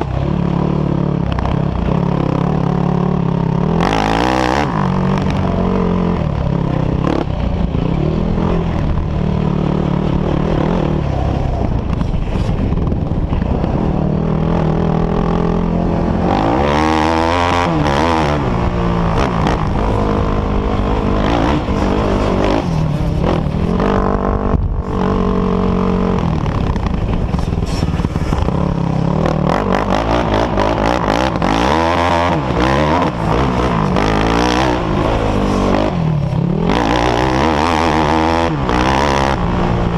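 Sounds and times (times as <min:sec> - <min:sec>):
off-road engines revving: 0:00.0 - 0:39.9.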